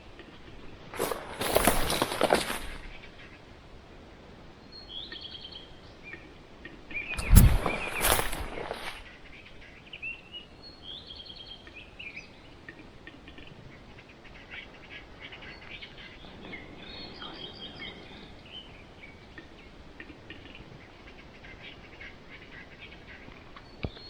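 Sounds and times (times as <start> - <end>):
small birds singing and chirping: 4.6 - 12.7, 13.3 - 19.8.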